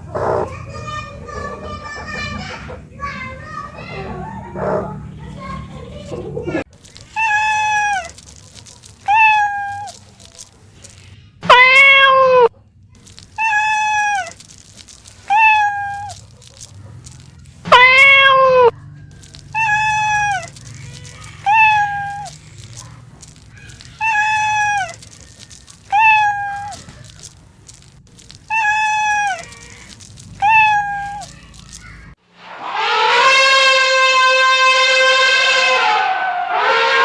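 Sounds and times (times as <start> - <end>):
cat meowing: 7.1 - 8.3, 9.0 - 10.0, 11.4 - 18.8, 19.5 - 31.7.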